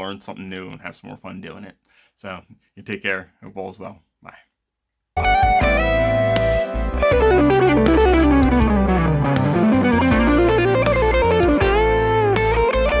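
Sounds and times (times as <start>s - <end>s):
bass and drums: 5.2s - 13.0s
electric guitar run: 5.2s - 13.0s.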